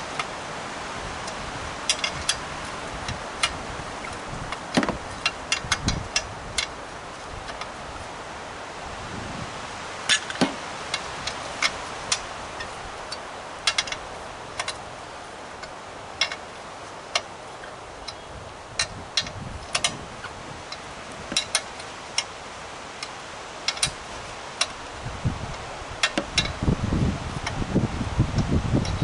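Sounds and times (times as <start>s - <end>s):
steady background hiss: 0.0s - 29.0s
hand tools tapping on metal: 1.2s - 7.8s, 10.0s - 14.9s, 15.5s - 22.4s, 23.0s - 24.9s, 25.5s - 26.6s.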